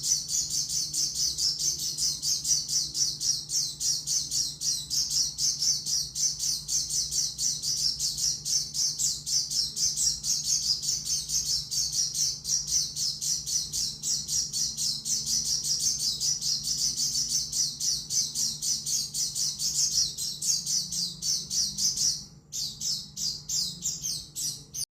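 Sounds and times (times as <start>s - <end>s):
bird twittering song: 0.0s - 24.9s.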